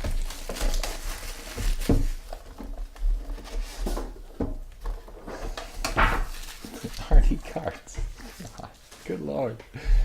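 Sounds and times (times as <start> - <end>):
cards and wrappers rustling: 0.0 - 9.5.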